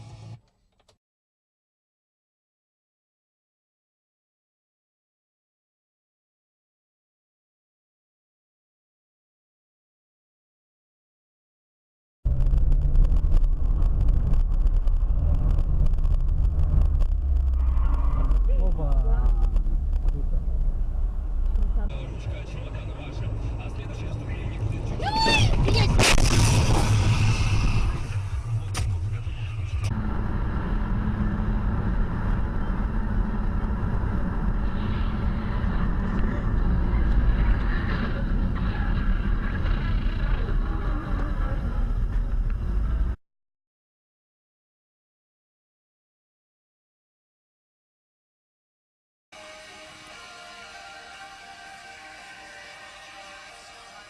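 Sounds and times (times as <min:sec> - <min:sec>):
car road and engine rumble: 0:12.3 - 0:43.2.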